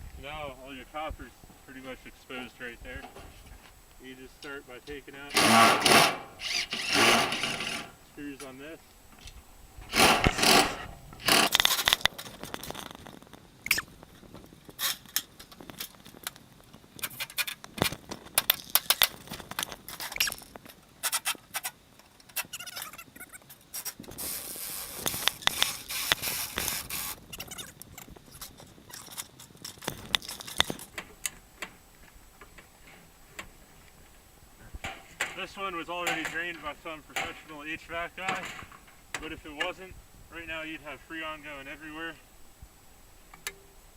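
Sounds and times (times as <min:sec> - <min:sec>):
metal scraping and clanking: 0:05.2 - 0:08.0, 0:09.8 - 0:12.6.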